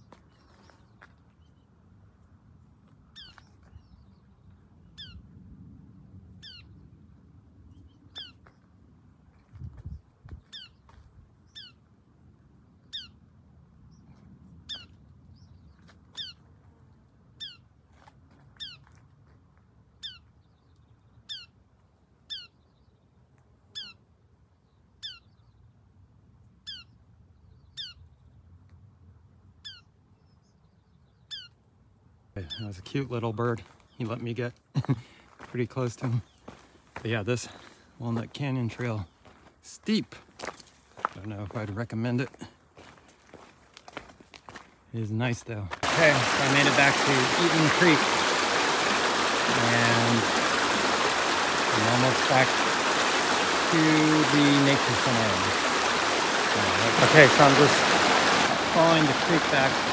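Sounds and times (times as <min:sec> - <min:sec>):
small bird calling: 0:06.4 - 0:06.8, 0:07.8 - 0:08.6, 0:11.5 - 0:11.8, 0:12.8 - 0:13.2, 0:16.1 - 0:16.4, 0:22.3 - 0:22.6, 0:23.7 - 0:24.0, 0:25.0 - 0:25.5, 0:26.6 - 0:27.0, 0:27.7 - 0:28.1, 0:31.0 - 0:31.6, 0:45.9 - 0:59.9.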